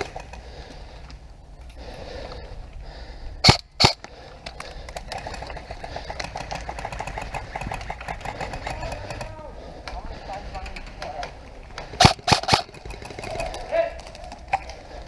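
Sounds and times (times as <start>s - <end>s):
sharp airsoft gunshots: 3.4s - 4.0s, 11.9s - 13.4s
full-auto airsoft fire rattle: 4.9s - 9.4s, 11.8s - 14.6s.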